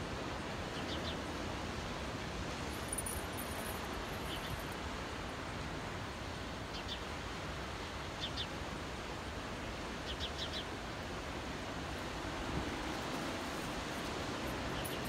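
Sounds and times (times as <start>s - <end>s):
distant surf: 10.7s - 15.0s.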